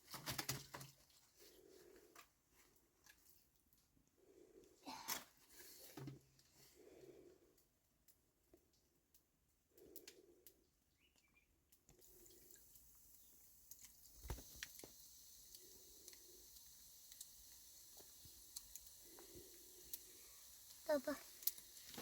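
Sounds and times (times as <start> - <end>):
faint steady hiss: 11.3 - 22.0.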